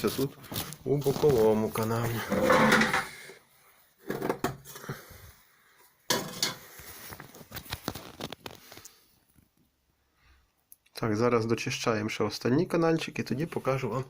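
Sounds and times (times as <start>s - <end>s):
metal tool scraping brick: 2.2s - 3.2s.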